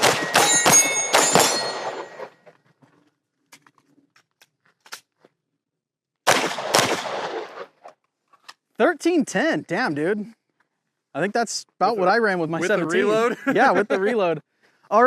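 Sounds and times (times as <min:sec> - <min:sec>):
pistol shots: 0:00.0 - 0:02.3, 0:06.2 - 0:07.8
steel targets ringing: 0:00.0 - 0:02.4.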